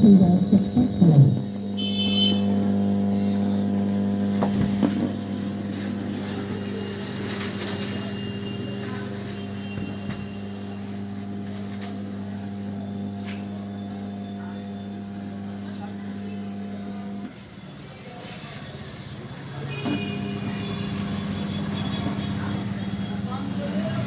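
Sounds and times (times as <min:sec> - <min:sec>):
speaker mains hum: 0:00.0 - 0:18.2.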